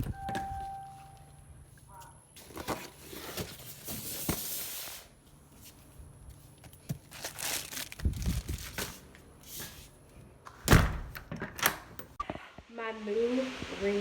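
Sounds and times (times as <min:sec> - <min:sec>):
packaging rustling and crinkling: 0:06.4 - 0:09.2.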